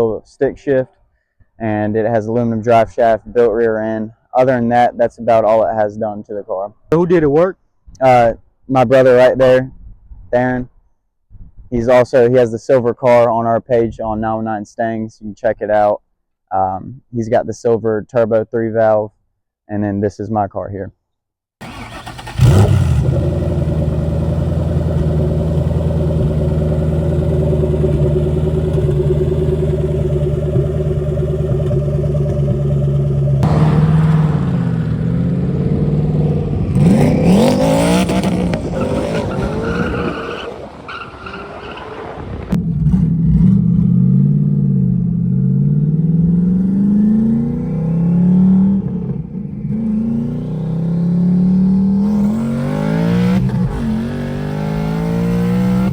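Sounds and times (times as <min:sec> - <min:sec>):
car engine revving: 0:21.6 - 0:55.9.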